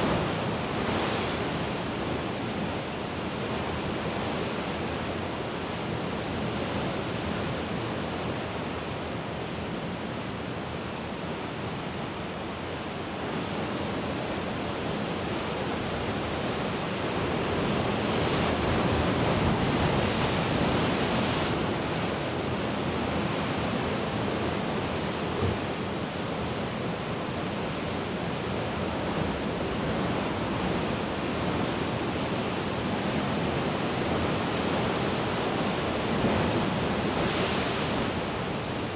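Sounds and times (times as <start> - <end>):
sea waves washing ashore: 28.0 - 38.9.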